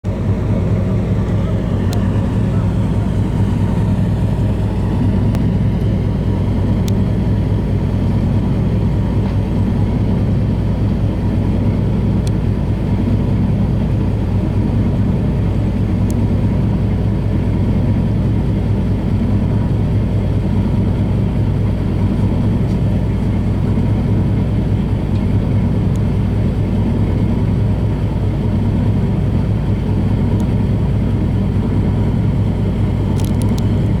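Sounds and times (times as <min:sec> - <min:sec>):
boat engine drone: 0:00.0 - 0:34.0.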